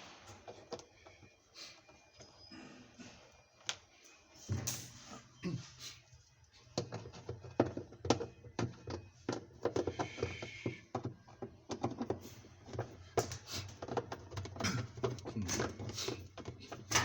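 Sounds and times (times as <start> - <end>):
knocks and clatter of metal parts: 4.5 - 5.1, 6.7 - 17.0.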